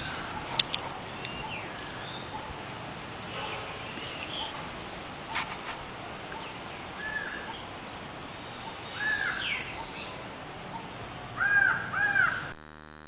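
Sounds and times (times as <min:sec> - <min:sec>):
steady outdoor hiss: 0:00.0 - 0:13.0
crow cawing: 0:09.0 - 0:09.5, 0:11.4 - 0:12.5
electronic buzz: 0:12.5 - 0:13.0.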